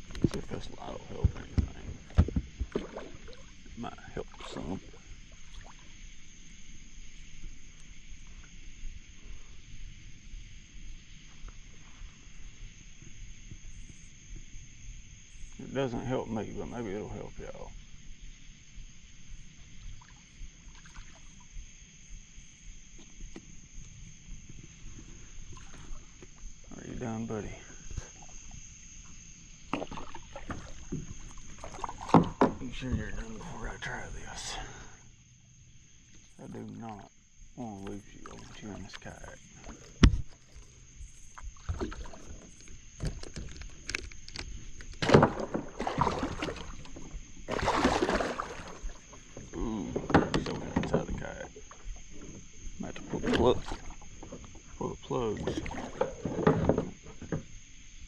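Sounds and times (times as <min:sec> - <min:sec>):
fish splashing and thrashing: 0:00.0 - 0:05.9, 0:29.7 - 0:32.5, 0:38.0 - 0:50.7, 0:55.4 - 0:56.8
night insects droning: 0:00.0 - 0:58.0
knocks against kayak hull: 0:01.1 - 0:03.2, 0:29.7 - 0:33.1, 0:39.9 - 0:40.4, 0:45.0 - 0:51.2.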